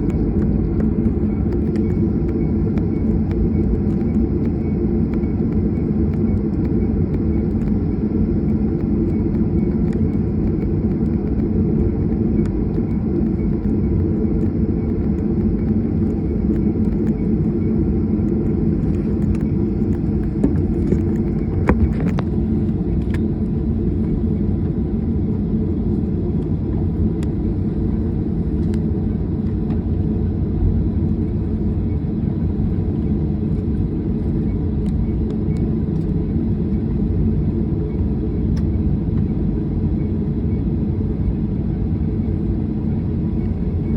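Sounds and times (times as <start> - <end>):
jet engines rumbling in cabin: 0.0 - 43.9.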